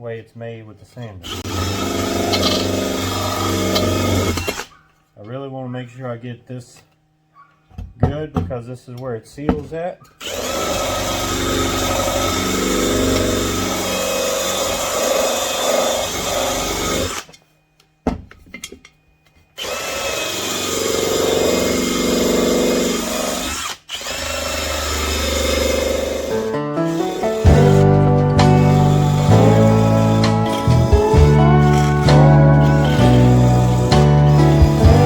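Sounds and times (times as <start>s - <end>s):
power drill on metal: 1.2s - 4.8s, 10.2s - 17.4s, 19.5s - 35.0s.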